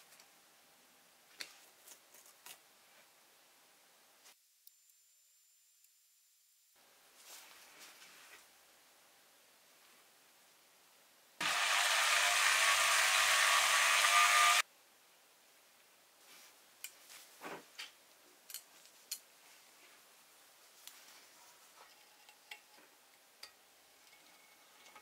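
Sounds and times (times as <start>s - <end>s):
small motor whirring: 11.4s - 14.6s.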